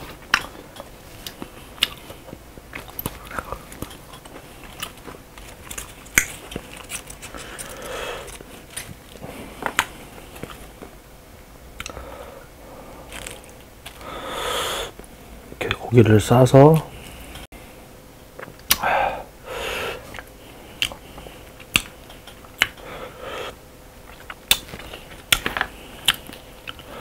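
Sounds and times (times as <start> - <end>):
person chewing food: 0.0 - 11.0, 11.8 - 12.2, 13.0 - 15.2, 18.4 - 18.9, 19.7 - 27.0
sharp wet mouth clicks: 18.5 - 18.9.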